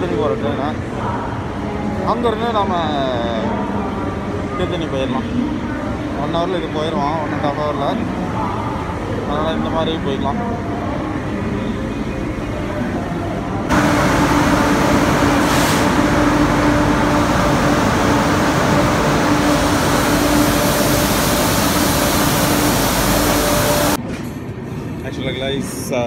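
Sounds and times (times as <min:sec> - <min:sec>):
train engine droning: 0:10.5 - 0:24.0.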